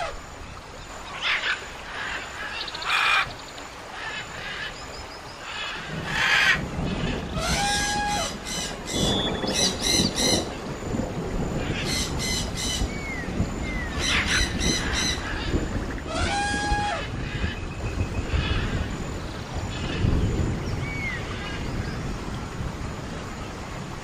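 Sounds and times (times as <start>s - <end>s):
sliding bird calls: 5.4s - 10.5s
harsh bird squawks: 5.5s - 10.5s, 13.9s - 17.6s
whistled bird notes: 7.4s - 10.5s.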